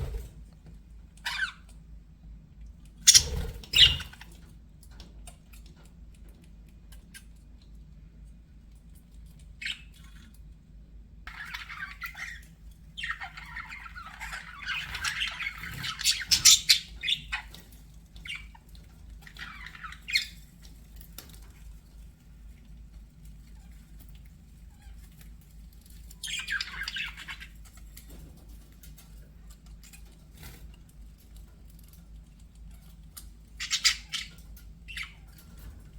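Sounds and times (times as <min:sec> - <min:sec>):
budgerigars chattering and squawking: 0:01.2 - 0:01.6, 0:03.0 - 0:04.3, 0:11.3 - 0:20.6, 0:26.2 - 0:27.8, 0:33.5 - 0:35.7.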